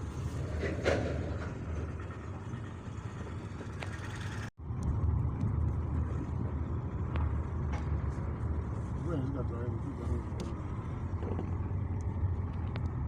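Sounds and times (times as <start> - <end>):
low rumble of street traffic: 0.0 - 13.0.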